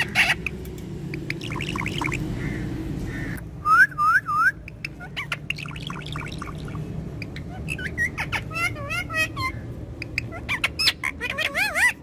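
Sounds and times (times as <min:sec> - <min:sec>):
parrot squawking: 0:00.0 - 0:03.4, 0:04.5 - 0:12.0.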